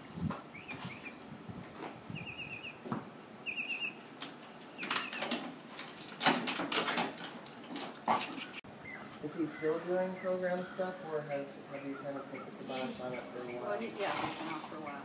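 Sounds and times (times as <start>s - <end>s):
small bird chirping: 0.5s - 1.2s, 2.1s - 2.8s, 3.4s - 4.1s, 8.3s - 13.8s.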